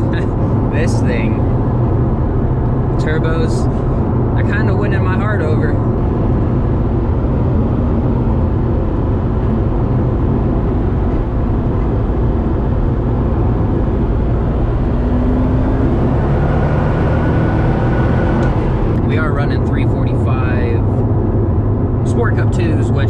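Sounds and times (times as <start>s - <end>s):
car engine drone: 0.0s - 23.0s
road noise: 0.0s - 23.0s.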